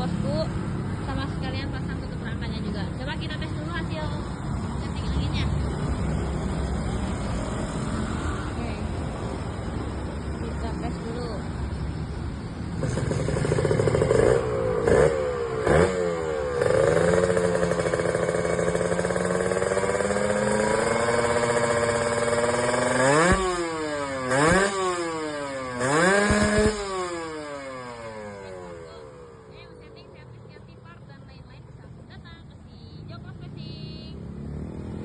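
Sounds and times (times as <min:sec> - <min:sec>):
two-stroke engine revving: 0:00.0 - 0:11.8, 0:12.6 - 0:35.0.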